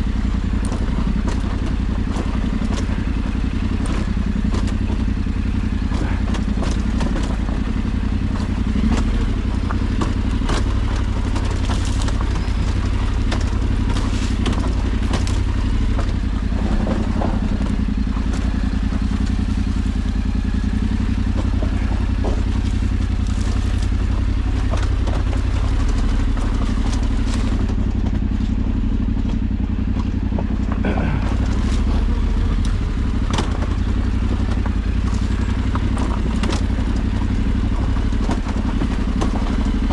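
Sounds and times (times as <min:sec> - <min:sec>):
clatter and knocks: 0:00.0 - 0:39.9
motorcycle engine running: 0:00.0 - 0:39.9.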